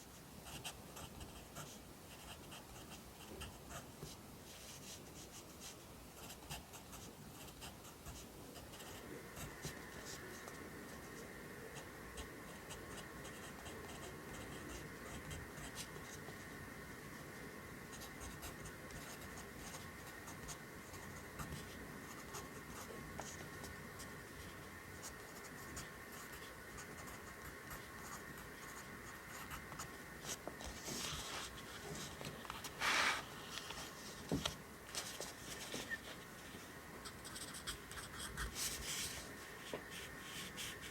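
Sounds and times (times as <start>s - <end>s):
faint steady hum: 0.0s - 40.9s
pencil writing on paper: 0.4s - 10.5s.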